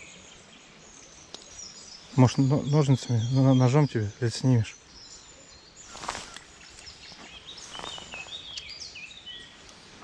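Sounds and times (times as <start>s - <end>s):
songbird singing: 0.0s - 10.0s
light rustling: 5.9s - 8.8s.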